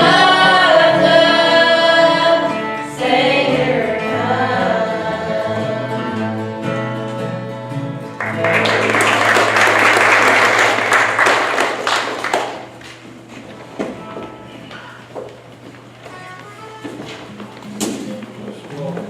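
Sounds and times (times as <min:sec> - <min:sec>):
choir singing gospel song: 0:00.0 - 0:07.5
congregation applauding: 0:08.2 - 0:12.8.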